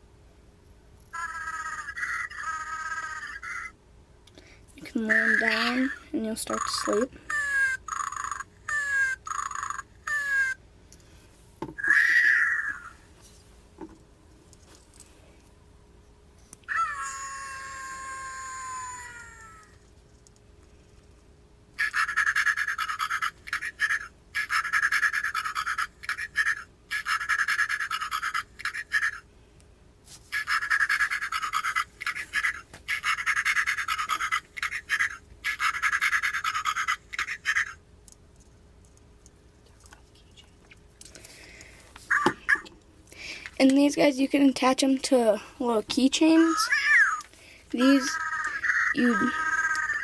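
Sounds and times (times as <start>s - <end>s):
toy meow-like cry: 1.1s - 3.8s, 7.3s - 10.6s, 11.8s - 13.0s, 16.7s - 19.8s, 46.5s - 47.3s, 48.0s - 50.0s.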